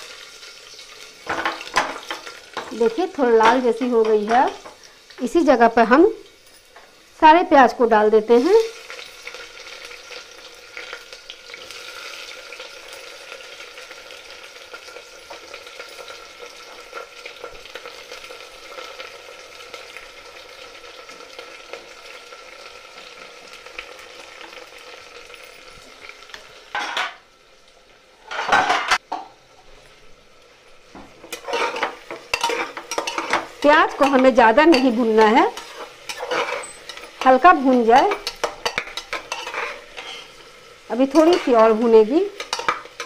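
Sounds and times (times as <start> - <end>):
onions sizzling in oil: 0.0 - 43.0
spatula scraping pot: 31.3 - 40.4.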